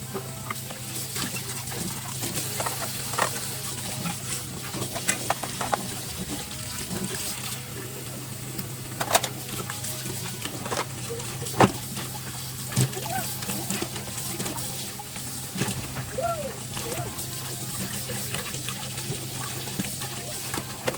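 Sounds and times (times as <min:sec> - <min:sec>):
tap water running in sink: 0:00.0 - 0:20.9
dishes clinking and knocking: 0:04.8 - 0:06.0.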